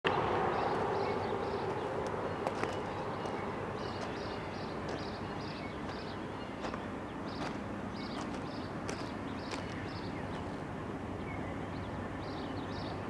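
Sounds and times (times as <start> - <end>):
birds chirping: 0.1 - 13.0
low outdoor rumble: 0.1 - 13.0.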